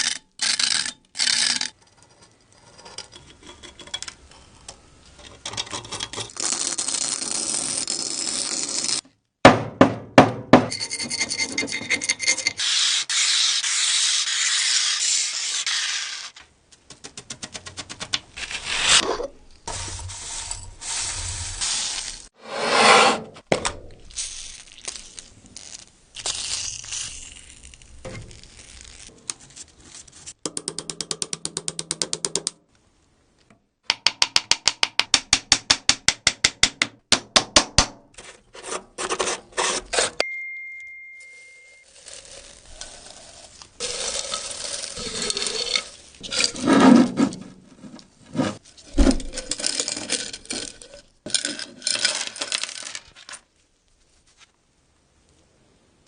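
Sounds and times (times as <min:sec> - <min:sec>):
short steady beep: 0:40.2 - 0:41.8
small hard parts handled: 0:48.8 - 0:53.5.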